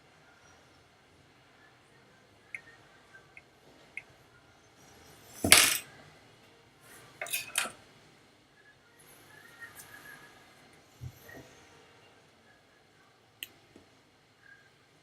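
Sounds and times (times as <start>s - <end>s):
loud tool clatter: 5.4s - 5.8s
metal hand tools clinking: 7.2s - 7.7s.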